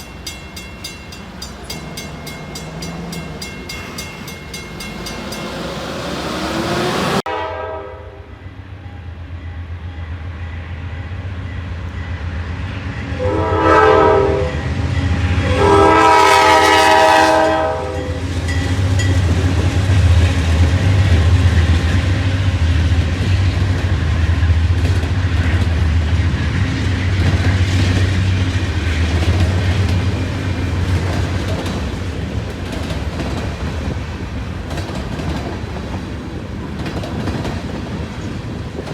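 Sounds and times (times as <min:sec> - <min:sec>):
train clattering past: 0:00.0 - 0:07.3, 0:11.5 - 0:38.9
another train passing: 0:00.0 - 0:38.9
diesel locomotive horn: 0:06.0 - 0:12.2, 0:12.8 - 0:19.4
locomotive engine rumble: 0:15.9 - 0:38.9.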